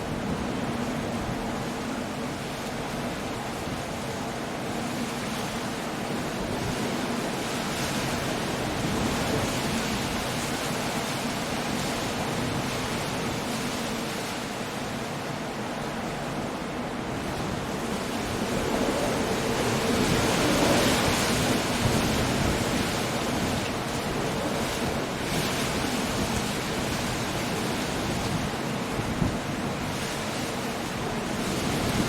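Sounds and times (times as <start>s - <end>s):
rushing sea: 0.0s - 32.0s
wind: 0.0s - 32.0s
wave breaking: 6.5s - 32.0s.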